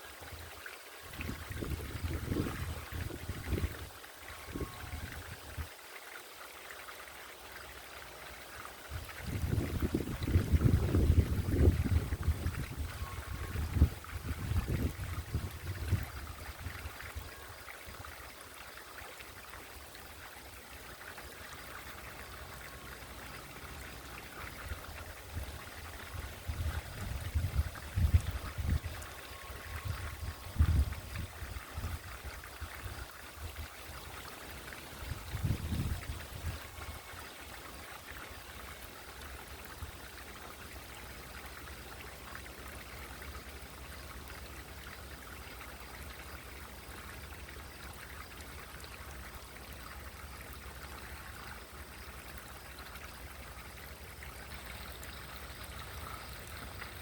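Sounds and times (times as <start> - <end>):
fountain water trickling: 0.0 - 57.0.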